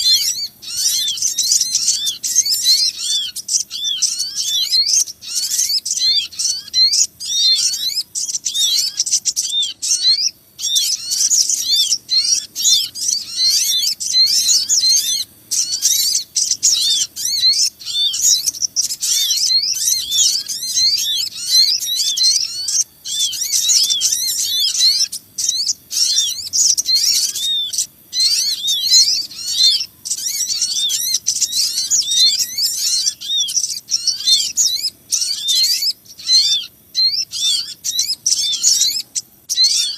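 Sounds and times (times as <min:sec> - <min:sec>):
flock of small birds chirping: 0:00.0 - 0:39.9.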